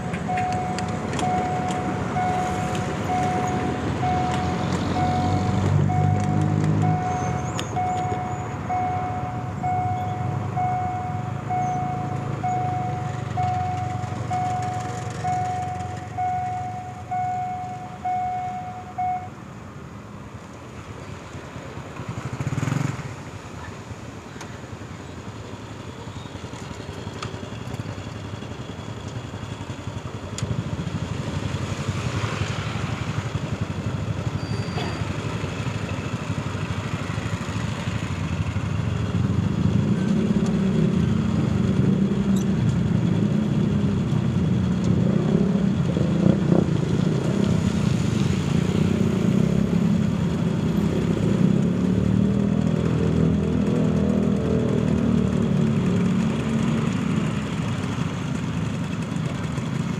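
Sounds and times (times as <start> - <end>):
locomotive engine rumble: 0.0 - 19.3.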